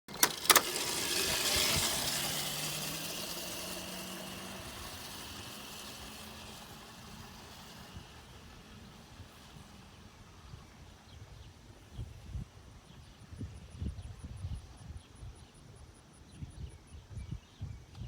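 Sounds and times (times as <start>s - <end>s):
dirt bike engine running: 0.1s - 9.7s.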